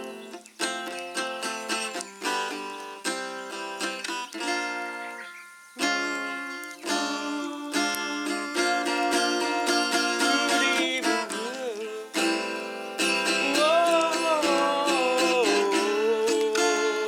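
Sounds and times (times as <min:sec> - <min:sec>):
person singing: 0:00.0 - 0:00.5, 0:05.8 - 0:17.0
acoustic guitar strumming: 0:00.0 - 0:17.0.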